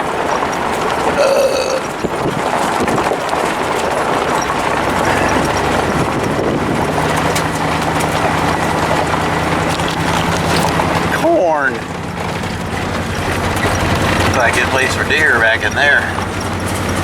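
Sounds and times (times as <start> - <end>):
low engine hum: 0.0 - 17.0
vehicle road noise: 0.0 - 17.0.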